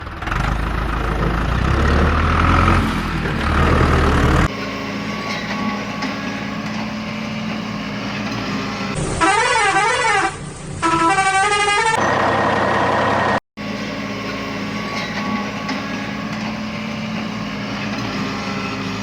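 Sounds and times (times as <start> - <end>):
heavy vehicle engine rumbling: 0.0 - 19.0.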